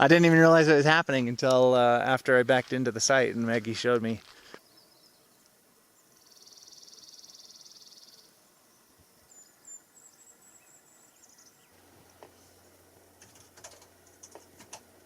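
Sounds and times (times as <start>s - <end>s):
faint high bird chirps: 4.6s - 11.9s.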